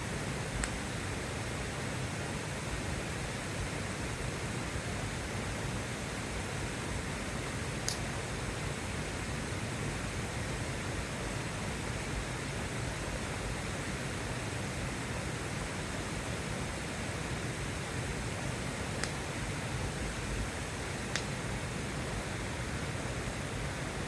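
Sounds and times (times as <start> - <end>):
sharp tick: 7.8 - 8.0.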